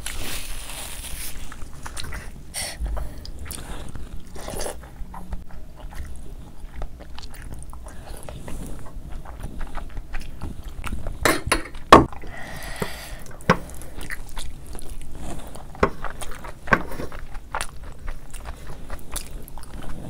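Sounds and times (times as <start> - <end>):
person chewing: 0.0 - 20.0.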